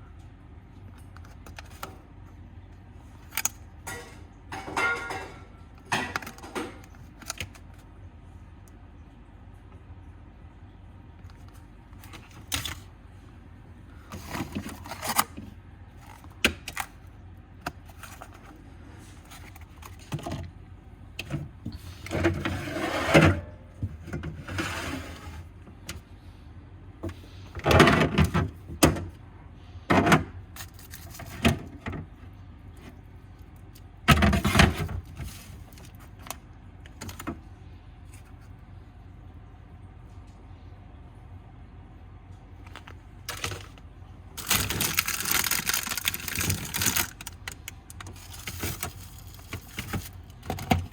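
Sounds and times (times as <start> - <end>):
low steady hum: 0.0 - 50.9
packaging rustling: 42.7 - 43.8, 44.4 - 50.8.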